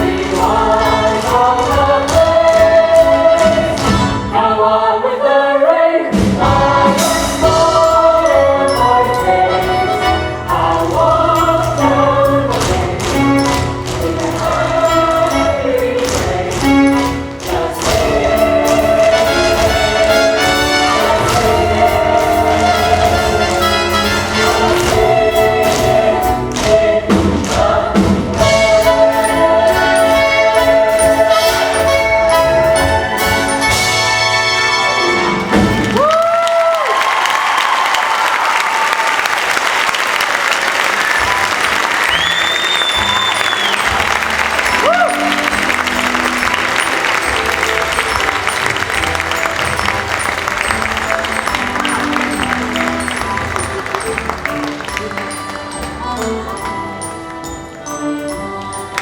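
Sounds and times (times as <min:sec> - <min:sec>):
chorus singing: 0:00.0 - 0:35.6
orchestral music with brass: 0:00.0 - 0:36.4, 0:40.6 - 0:59.0
instrumental accompaniment: 0:06.1 - 0:36.2, 0:40.8 - 0:59.0.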